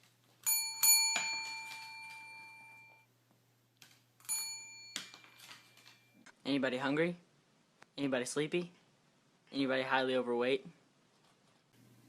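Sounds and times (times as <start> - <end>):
small metal bell ringing: 0.4 - 3.1, 4.2 - 6.2.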